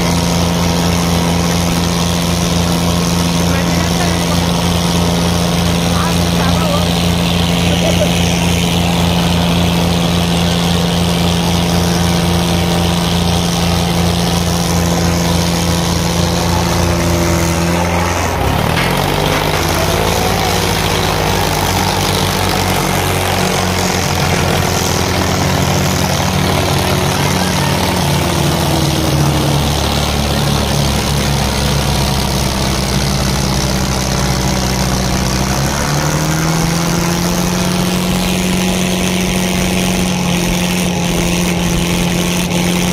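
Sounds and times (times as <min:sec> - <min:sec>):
diesel tractor engines running hard: 0:00.0 - 0:42.9.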